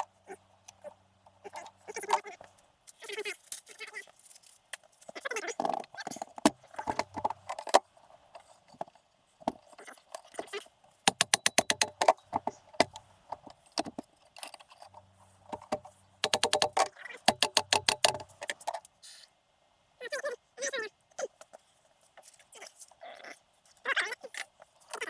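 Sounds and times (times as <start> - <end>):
metal tools clinking on engine parts: 11.0 - 12.9
rapid even clicks: 15.6 - 18.8.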